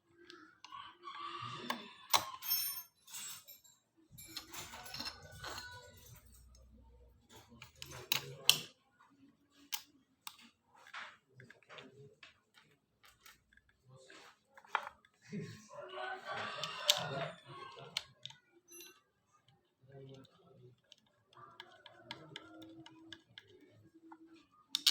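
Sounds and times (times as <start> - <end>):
metallic clicks and clinks: 2.1 - 8.7.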